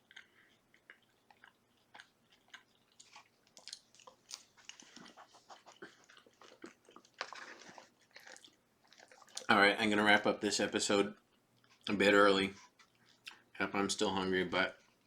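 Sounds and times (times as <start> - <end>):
person chewing food: 0.0 - 9.5, 11.1 - 13.6.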